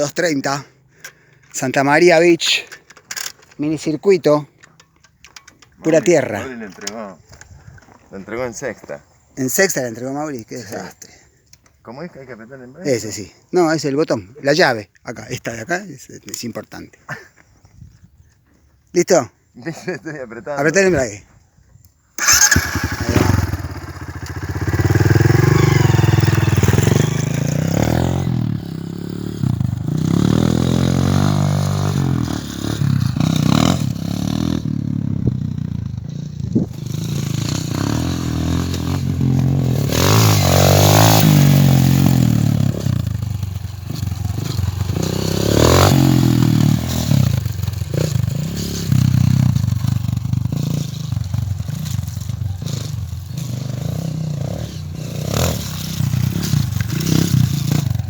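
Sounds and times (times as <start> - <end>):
dirt bike engine revving: 22.2 - 58.0.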